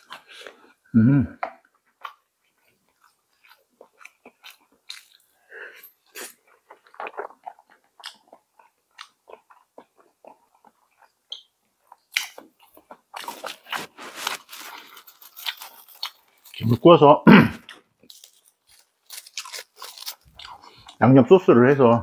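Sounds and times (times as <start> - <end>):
chewing and lip-smacking: 1.4 - 16.7, 17.6 - 21.1
crisp crackling: 13.1 - 16.9, 18.0 - 21.1.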